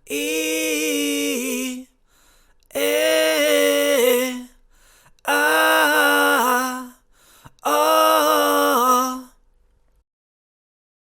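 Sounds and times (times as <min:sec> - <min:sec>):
person singing held notes a cappella: 0:00.0 - 0:04.6, 0:05.2 - 0:09.4.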